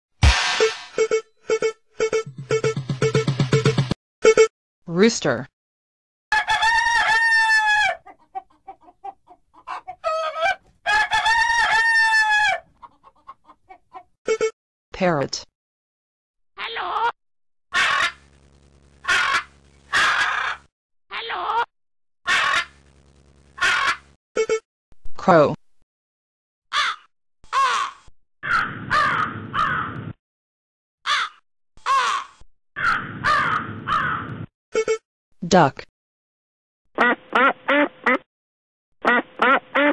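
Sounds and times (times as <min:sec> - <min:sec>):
rooster crowing: 0:06.3 - 0:08.0, 0:10.0 - 0:12.7
chicken clucking: 0:07.8 - 0:14.1
crow cawing: 0:17.8 - 0:18.2, 0:19.1 - 0:20.7, 0:22.3 - 0:22.7, 0:23.6 - 0:24.0, 0:26.7 - 0:30.0, 0:31.1 - 0:34.3.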